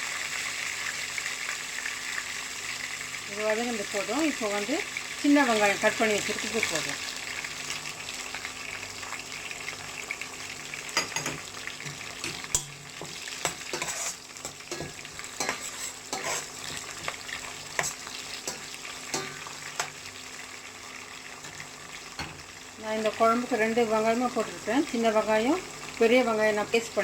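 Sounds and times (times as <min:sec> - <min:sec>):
oil sizzling in a pan: 0:00.0 - 0:27.0
spatula scraping a pan: 0:12.2 - 0:20.0.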